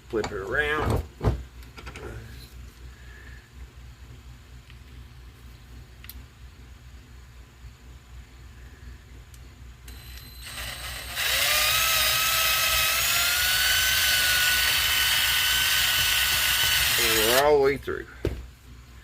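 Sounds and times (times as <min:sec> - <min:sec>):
power drill boring wood: 0:09.9 - 0:17.5.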